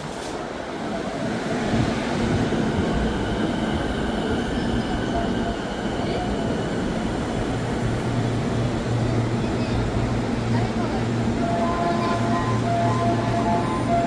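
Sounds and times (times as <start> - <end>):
electric train rumbling with whine: 0.0 - 14.0.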